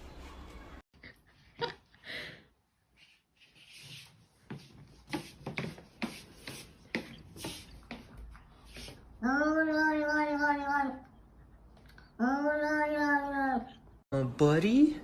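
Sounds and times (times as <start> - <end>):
scratching and rubbing: 3.0 - 9.0.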